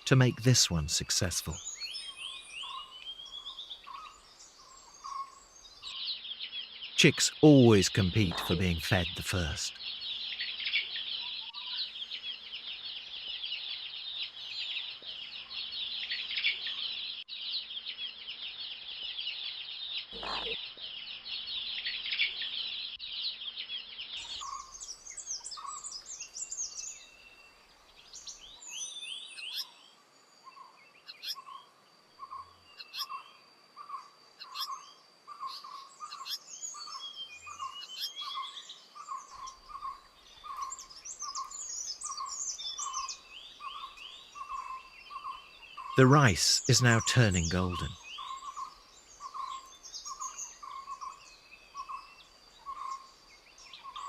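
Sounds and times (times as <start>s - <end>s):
birds chirping: 0.0s - 5.9s, 7.0s - 9.8s, 40.3s - 51.0s.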